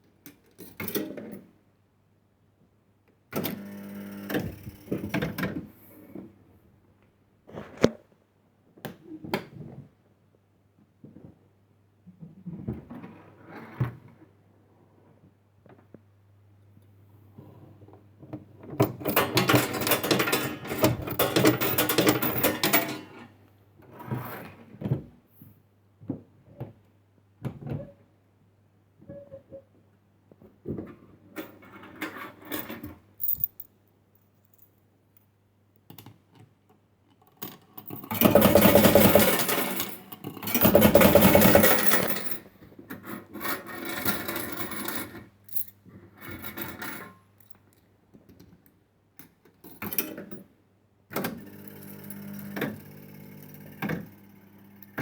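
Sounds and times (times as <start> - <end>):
low mains hum: 12.7 - 36.4, 49.6 - 55.0.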